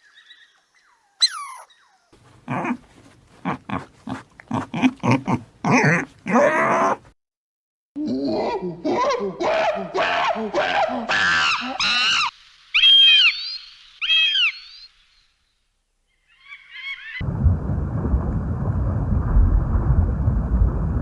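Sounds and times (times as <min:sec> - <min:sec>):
high-pitched animal calls: 0:00.2 - 0:02.8, 0:11.1 - 0:14.9, 0:16.3 - 0:17.2
animal cries rising in pitch: 0:01.2 - 0:02.8, 0:10.0 - 0:14.8, 0:16.3 - 0:17.2.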